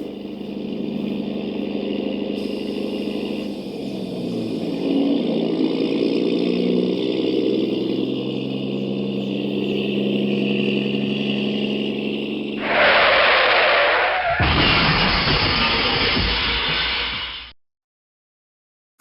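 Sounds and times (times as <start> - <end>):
model vehicle motors droning: 0.0 - 13.0
loud hiss: 2.3 - 4.8, 12.6 - 17.5.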